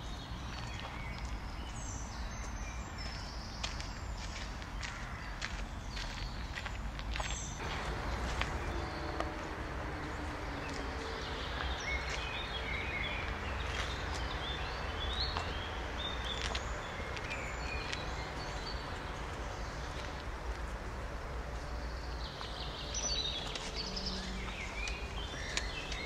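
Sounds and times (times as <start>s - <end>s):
songbird chirping: 0.0s - 26.0s
low outdoor rumble: 6.6s - 26.0s.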